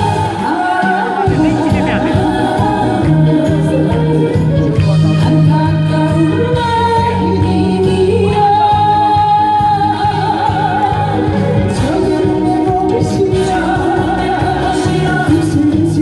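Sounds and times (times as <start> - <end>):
loud backing track: 0.0 - 16.0
woman singing with vibrato: 0.0 - 16.0.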